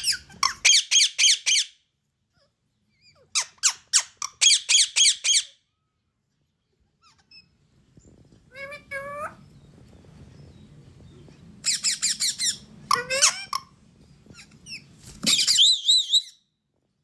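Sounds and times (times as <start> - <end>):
parrot squawking: 0.0 - 1.8, 2.9 - 5.6, 11.6 - 16.4.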